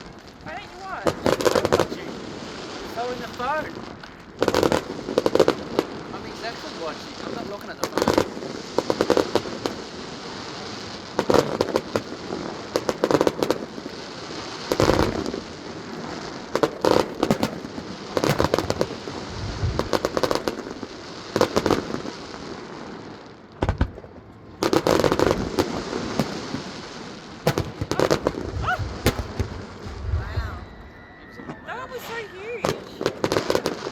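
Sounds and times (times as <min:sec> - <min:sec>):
firework shells bursting: 0:00.0 - 0:22.4, 0:23.4 - 0:33.9
firework crackles: 0:00.0 - 0:33.9
heavy low booms: 0:28.2 - 0:30.9.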